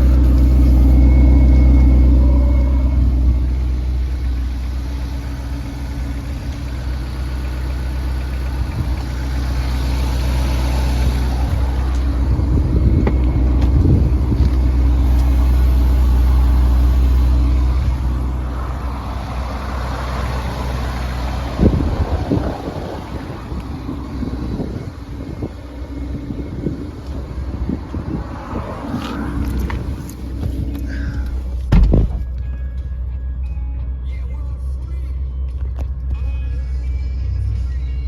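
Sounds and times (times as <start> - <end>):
car engine low rumble: 0.0 - 38.0
brief thump: 31.7 - 32.4.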